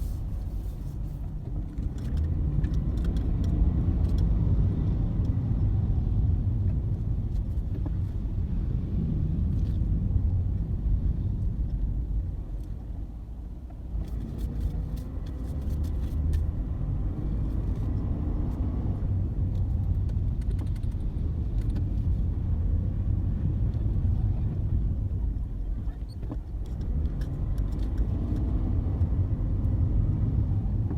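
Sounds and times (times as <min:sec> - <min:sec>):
low rumble of motor vehicle: 0:00.0 - 0:30.9.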